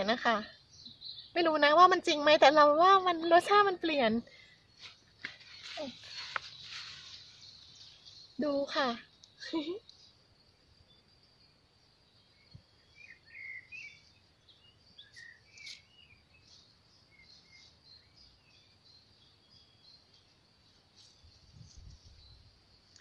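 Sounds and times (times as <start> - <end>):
faint bird chirps: 0.0 - 23.0
faint high hiss: 3.9 - 18.6.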